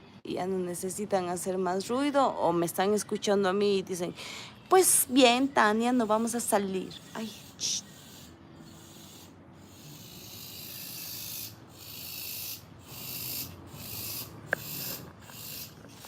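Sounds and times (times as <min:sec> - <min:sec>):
cicadas buzzing: 0:05.9 - 0:16.0.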